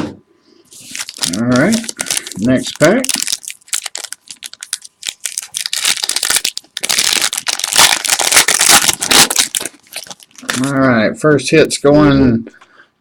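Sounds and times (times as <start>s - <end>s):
wrapper tearing and crinkling: 0.8s - 10.8s.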